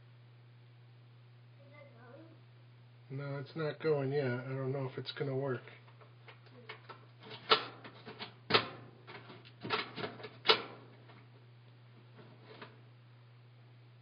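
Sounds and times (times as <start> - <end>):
steady low hum: 0.0 - 14.0
washing machine clicks and knocks: 7.2 - 10.9.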